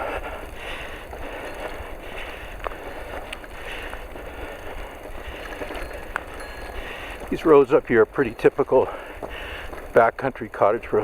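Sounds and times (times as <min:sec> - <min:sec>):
footsteps on road: 0:00.0 - 0:11.0
faint clicks: 0:02.6 - 0:07.4.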